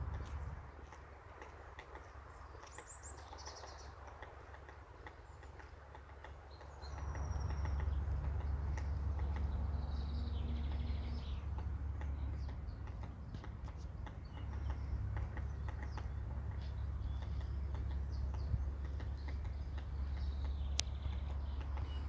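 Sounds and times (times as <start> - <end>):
low rumble: 0.0 - 0.8
birds chirping and trilling: 0.0 - 22.0.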